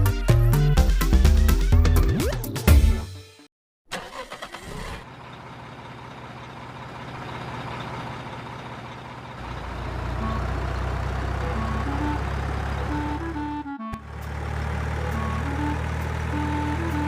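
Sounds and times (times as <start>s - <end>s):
truck engine running: 4.0s - 17.0s.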